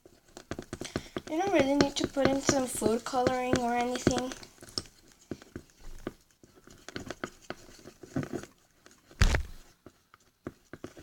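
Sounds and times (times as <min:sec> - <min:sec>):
slime squelching in a bowl: 0:00.0 - 0:11.0
loud knock: 0:09.2 - 0:09.6.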